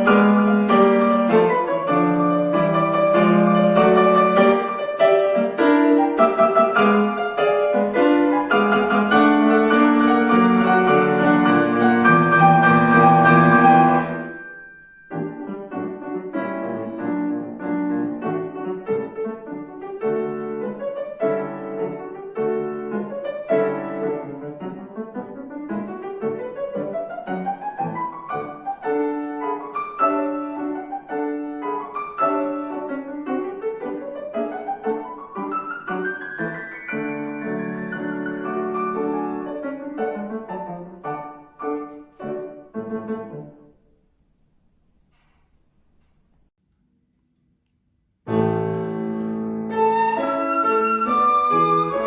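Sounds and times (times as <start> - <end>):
classical piano piece: 0.0 - 46.5, 48.2 - 52.0.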